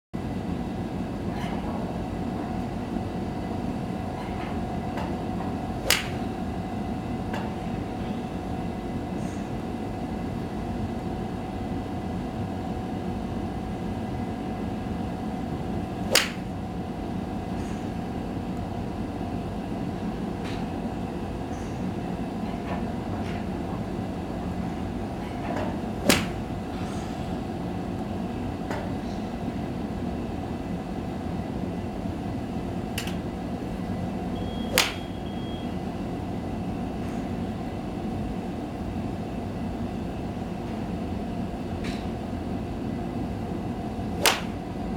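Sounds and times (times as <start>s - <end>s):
steady background hum: 0.2s - 44.9s
golf club striking ball: 5.8s - 6.3s, 16.1s - 16.5s, 26.0s - 26.5s, 34.6s - 35.3s, 44.2s - 44.6s.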